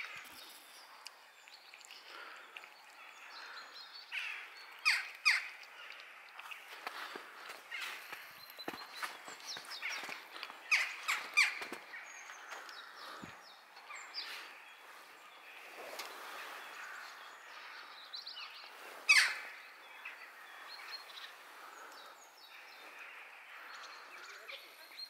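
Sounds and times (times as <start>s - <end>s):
harsh bird calls: 0.0s - 25.0s
small birds chirping: 0.0s - 25.0s.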